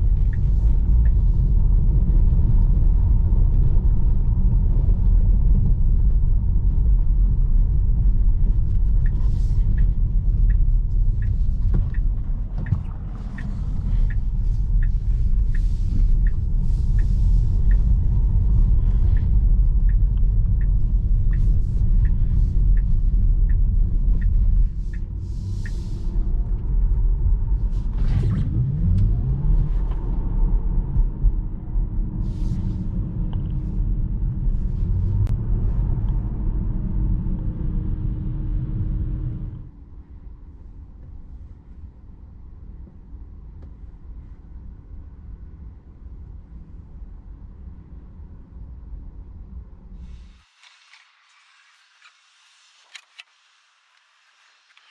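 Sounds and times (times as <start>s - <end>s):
turn signal ticking: 0.0s - 31.4s
road and tyre noise: 0.0s - 54.9s.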